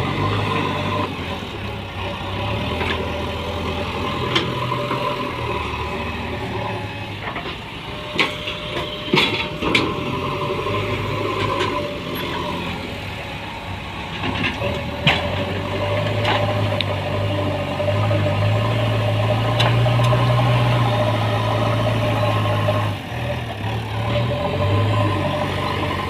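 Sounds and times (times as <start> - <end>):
diesel engine running: 0.0 - 26.0
metallic knocks and clanks: 7.2 - 10.0.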